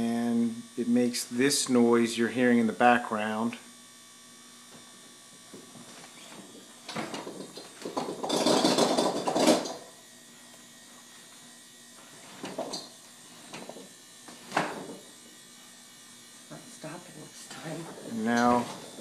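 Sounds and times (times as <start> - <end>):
refrigerator humming: 0.0 - 19.0
loud buzzing rattle: 5.1 - 19.0.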